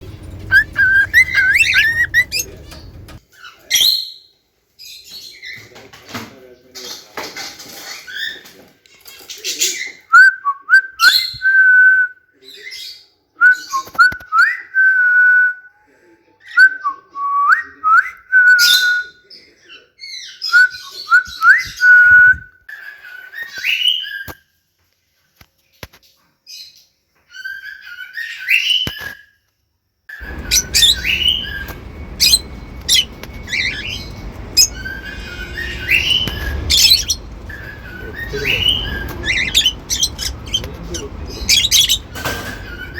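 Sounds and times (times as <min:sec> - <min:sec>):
cockatiels whistling: 0:00.0 - 0:03.2, 0:30.2 - 0:42.9
low background hum: 0:00.0 - 0:03.2, 0:30.2 - 0:42.9
cockatiel chirps: 0:00.2 - 0:03.2, 0:30.2 - 0:42.9.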